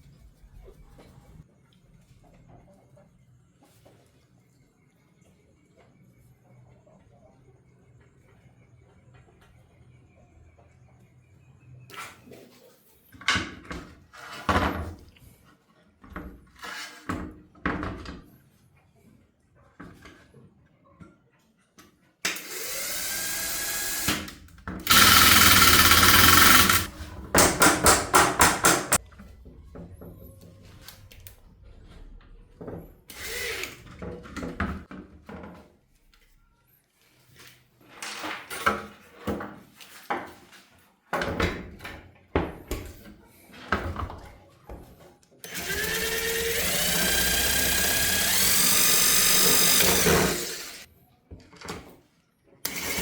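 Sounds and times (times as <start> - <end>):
power drill whining: 22.3 - 26.9, 33.1 - 33.9, 45.5 - 50.9, 52.7 - 53.0
tools clicking and knocking: 24.1 - 29.0.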